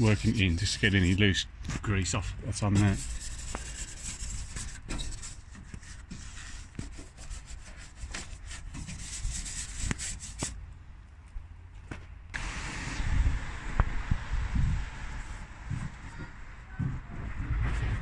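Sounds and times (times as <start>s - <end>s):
brush scrubbing: 0.0s - 1.2s, 2.6s - 10.6s.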